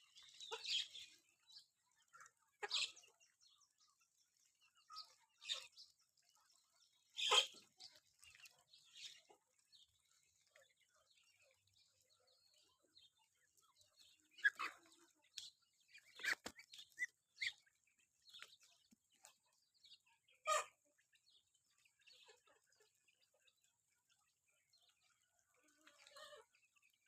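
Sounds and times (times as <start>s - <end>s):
chickens clucking: 0.0s - 3.7s, 4.7s - 27.0s.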